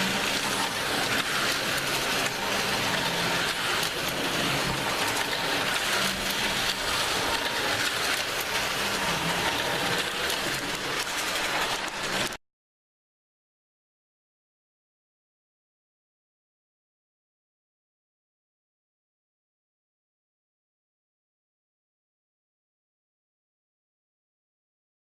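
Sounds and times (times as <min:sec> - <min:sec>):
slot car rattling hiss: 0:00.0 - 0:12.3.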